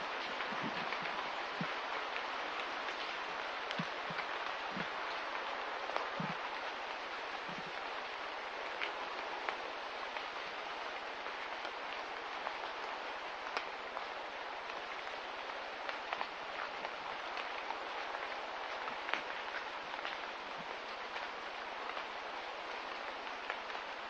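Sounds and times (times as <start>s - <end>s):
steady rain hiss: 0.0s - 24.0s
small drip ticks: 0.2s - 6.6s, 13.5s - 14.1s.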